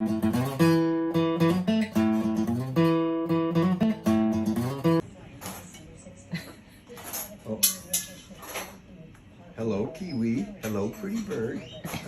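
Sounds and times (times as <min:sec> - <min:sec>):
acoustic guitar strumming: 0:00.0 - 0:05.0.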